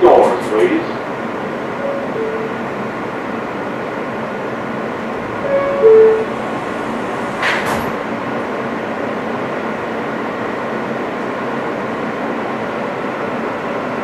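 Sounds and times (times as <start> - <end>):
subway car running noise: 0.0 - 14.0
two-note door chime: 1.8 - 2.7, 5.4 - 6.4.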